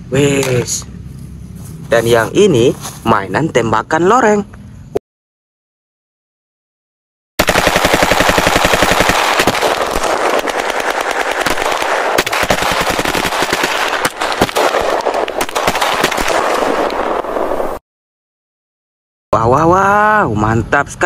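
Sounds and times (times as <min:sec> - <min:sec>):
automatic gunfire: 0:07.4 - 0:17.6.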